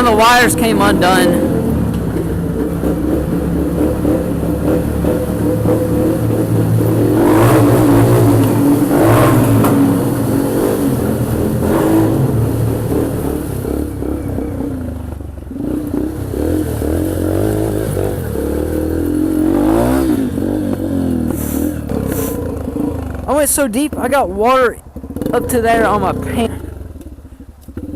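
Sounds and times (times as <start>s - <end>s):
dirt bike engine revving: 0.0s - 27.9s
short rushes of noise: 21.3s - 22.5s.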